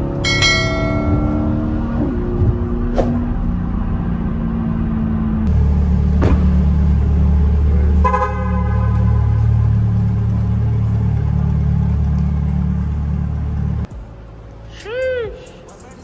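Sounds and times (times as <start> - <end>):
car engine cruising in cabin: 0.0 - 14.1
car engine running low: 0.0 - 14.3
car horn: 7.8 - 10.0.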